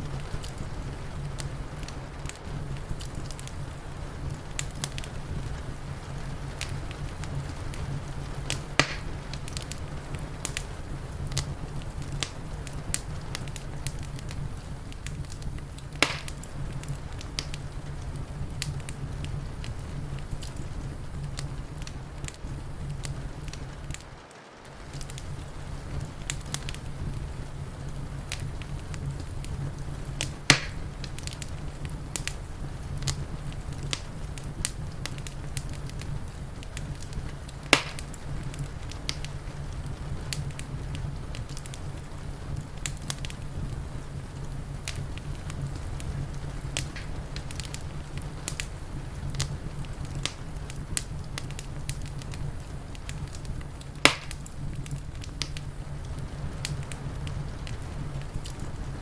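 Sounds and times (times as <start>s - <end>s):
low steady rumble: 0.0s - 24.1s, 24.7s - 59.0s
wood fire crackling: 0.0s - 59.0s.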